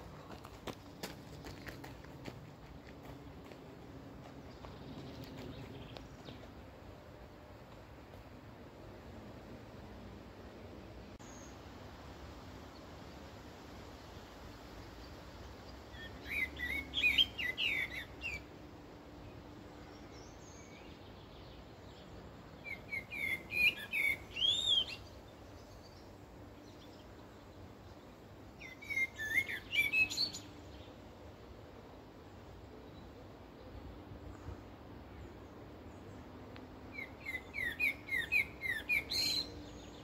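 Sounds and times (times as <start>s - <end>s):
faint background hiss: 0.0s - 40.0s
songbird whistling song: 15.9s - 18.5s, 22.6s - 26.1s, 28.6s - 30.6s, 36.9s - 40.0s.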